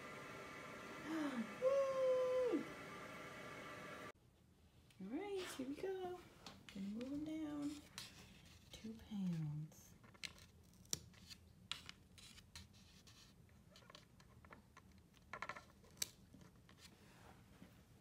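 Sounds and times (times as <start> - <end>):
faint scratching: 5.1 - 9.6.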